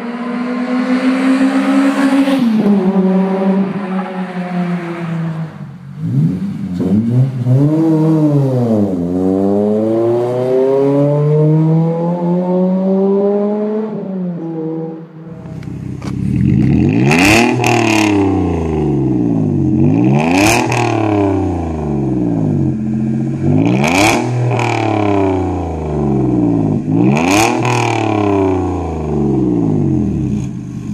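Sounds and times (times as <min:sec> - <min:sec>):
car engine revving: 0:00.0 - 0:30.9
engine blips with exhaust cracks: 0:15.3 - 0:30.9.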